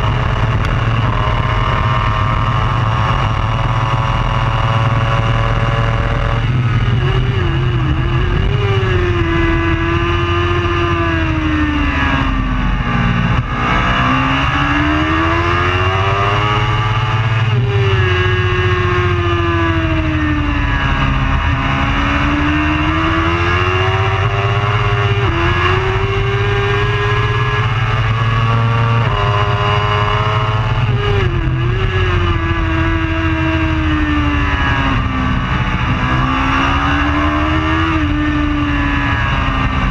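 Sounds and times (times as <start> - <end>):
racing motorcycle engine accelerating: 0.0 - 39.9.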